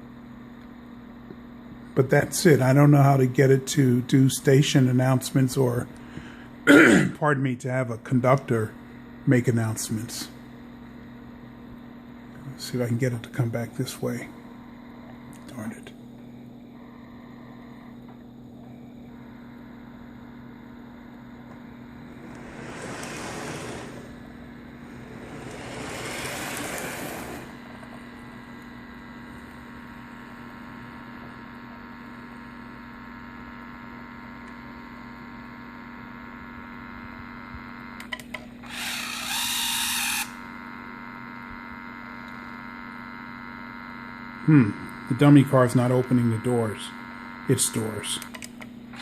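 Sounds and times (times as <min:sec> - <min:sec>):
steady electrical hum: 0:00.0 - 0:49.0
sudden loud burst: 0:21.9 - 0:27.7
toy train motor and wheels: 0:22.2 - 0:24.1, 0:24.8 - 0:27.6, 0:38.7 - 0:40.4.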